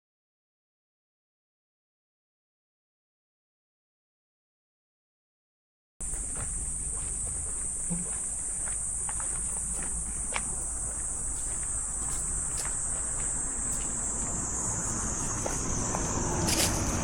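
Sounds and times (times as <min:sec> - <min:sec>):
insects droning: 0:06.0 - 0:17.0
rustle: 0:06.0 - 0:17.0.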